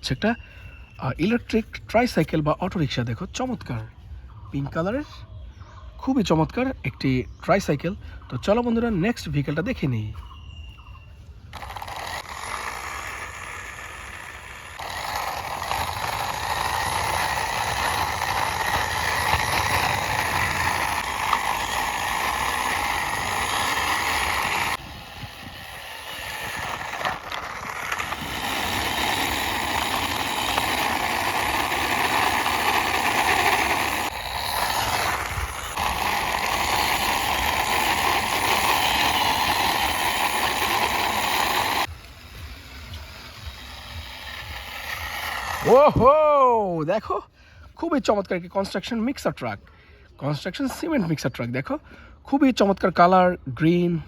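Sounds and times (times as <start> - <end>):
toy truck wheels grinding on wall: 11.5 - 46.6.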